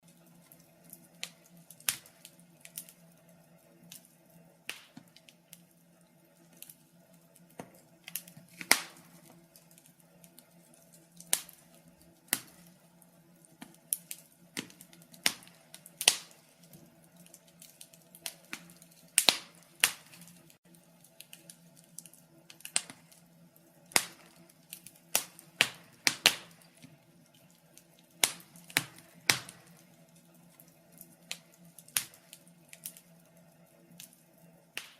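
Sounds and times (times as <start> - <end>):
wood fire crackling and popping: 0.0 - 34.9.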